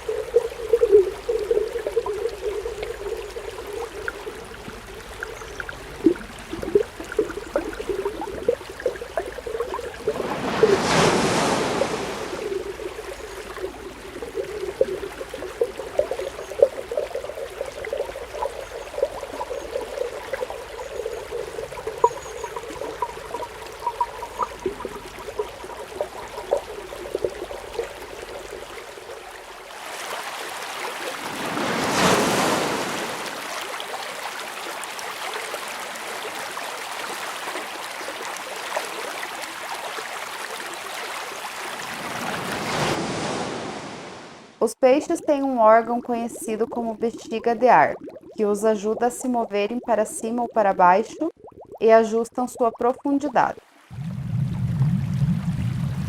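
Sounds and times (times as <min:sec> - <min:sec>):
underwater bubbling pops and gurgles: 0:00.0 - 0:29.7, 0:44.8 - 0:56.0
underwater whooshes: 0:09.6 - 0:15.0, 0:31.1 - 0:33.5, 0:41.9 - 0:44.6, 0:53.9 - 0:56.0.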